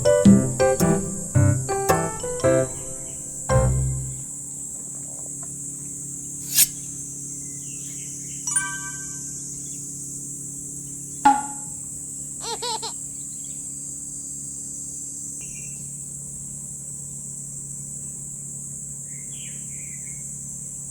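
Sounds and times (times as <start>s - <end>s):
quick chirps: 6.4s - 6.8s.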